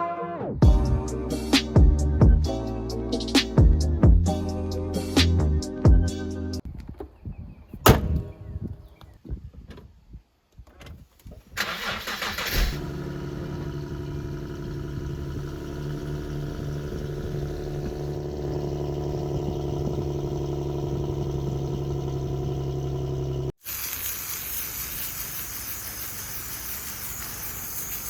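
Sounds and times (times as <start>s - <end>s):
car engine starter cranking: 11.5s - 23.5s
car engine idling: 11.6s - 23.5s.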